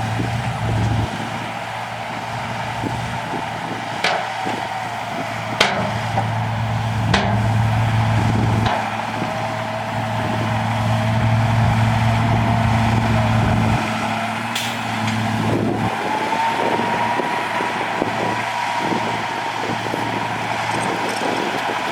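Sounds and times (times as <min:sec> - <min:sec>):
bulldozer diesel engine droning: 0:00.0 - 0:21.9
sharp metallic clanks: 0:04.0 - 0:04.6, 0:05.5 - 0:10.3, 0:13.8 - 0:15.6.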